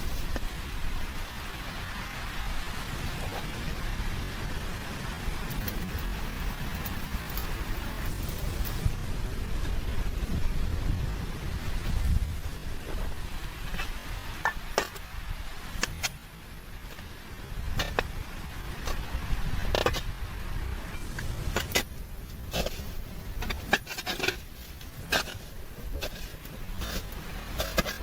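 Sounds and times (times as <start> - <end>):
wind rumbling on microphone: 0.0 - 28.0.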